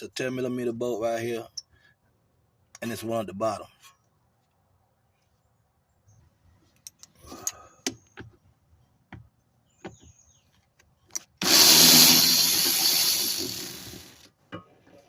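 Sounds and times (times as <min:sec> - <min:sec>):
power tool backing out bolt: 0:11.4 - 0:14.3.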